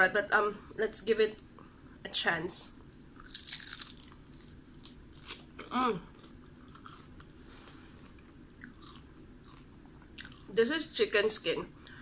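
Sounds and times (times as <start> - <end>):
crunchy food chewed: 3.2 - 10.5.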